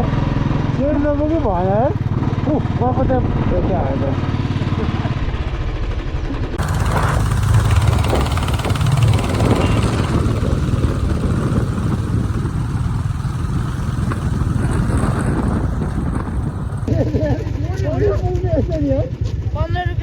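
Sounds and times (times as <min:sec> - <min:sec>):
vehicle engine rumbling: 0:06.2 - 0:20.0.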